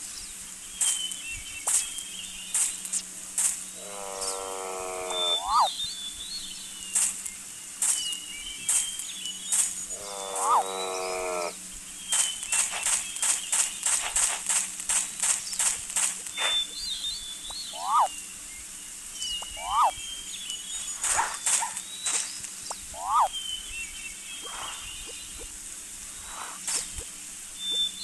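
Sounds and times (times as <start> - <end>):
animal crying with upward squeal: 4.8 - 5.7, 17.8 - 18.1, 19.6 - 19.9, 23.0 - 23.3
high bird chirps: 5.1 - 7.1, 16.3 - 18.3, 19.2 - 25.5, 27.6 - 28.0.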